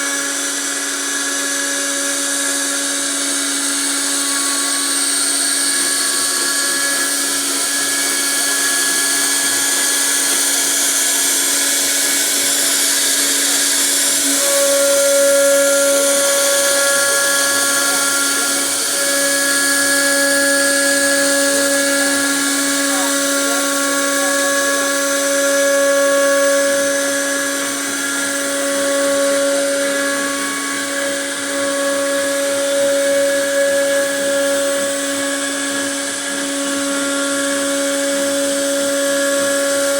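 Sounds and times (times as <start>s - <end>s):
hiss of cutting wood: 0.0s - 39.9s
router spindle whine: 0.0s - 39.9s.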